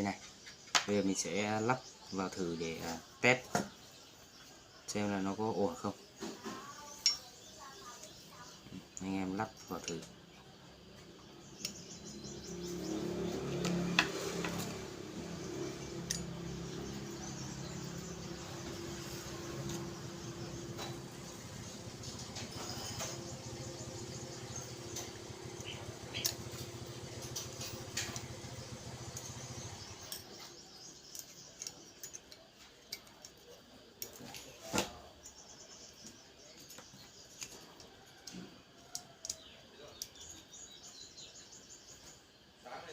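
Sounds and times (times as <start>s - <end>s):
small metal parts clicking: 15.8s - 16.3s, 24.8s - 34.6s, 36.0s - 40.4s.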